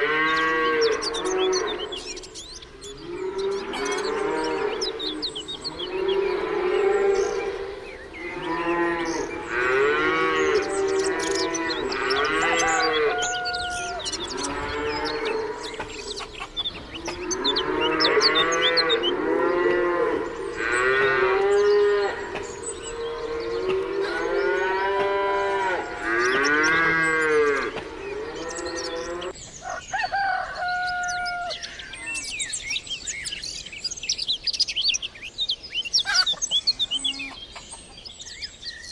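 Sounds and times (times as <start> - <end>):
cattle mooing: 0.0 - 2.0, 3.0 - 16.0, 17.0 - 29.4
small birds chirping: 0.0 - 38.9.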